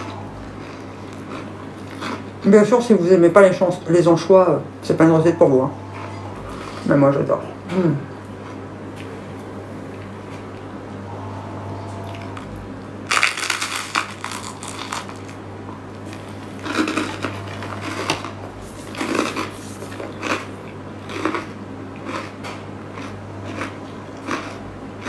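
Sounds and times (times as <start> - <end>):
crunchy toast chewing: 0.0 - 2.4, 13.1 - 25.0.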